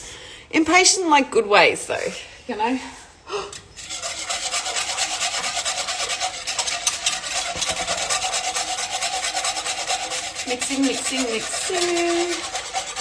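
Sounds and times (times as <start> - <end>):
utensil scraping bowl: 2.9 - 13.0.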